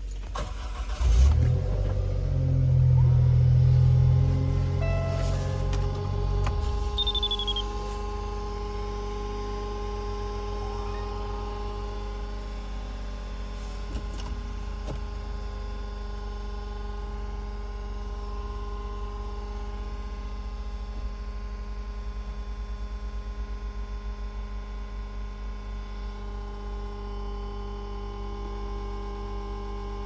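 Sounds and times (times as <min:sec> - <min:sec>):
low pulsing engine hum: 0:00.0 - 0:30.0
steady whine of held tones: 0:02.4 - 0:21.6.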